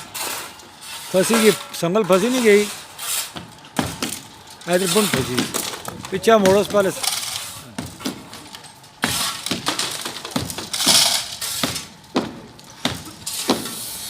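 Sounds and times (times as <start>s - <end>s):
sharp cracks and knocks: 3.2s - 13.8s
debris crumbling and clattering: 3.3s - 13.8s.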